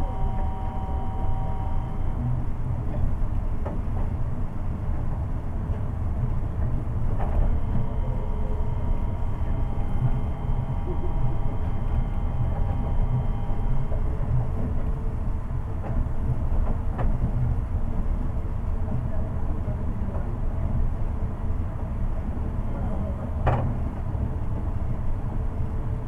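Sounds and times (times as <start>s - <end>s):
inverter whine: 0.0s - 3.0s, 7.2s - 15.3s
train running rumble: 0.0s - 26.0s.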